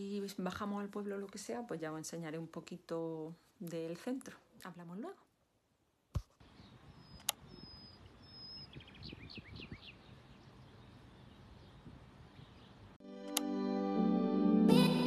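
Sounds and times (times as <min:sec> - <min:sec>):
outdoor background noise: 0:00.0 - 0:13.0
birds calling: 0:06.4 - 0:13.0.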